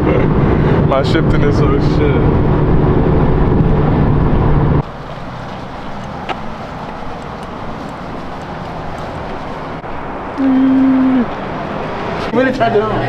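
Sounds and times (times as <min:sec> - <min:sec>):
low rumble: 0:00.0 - 0:04.8
car engine running: 0:00.4 - 0:12.3.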